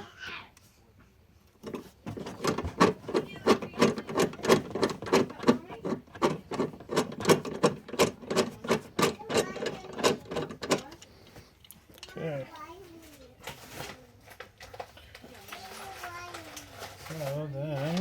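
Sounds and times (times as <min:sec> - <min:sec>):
hand rivet tool clicking: 0:01.6 - 0:11.1.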